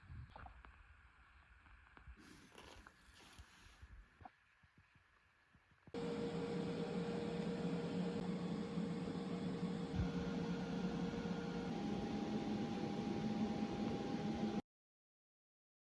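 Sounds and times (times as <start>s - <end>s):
machine hissing and humming: 6.0s - 14.6s.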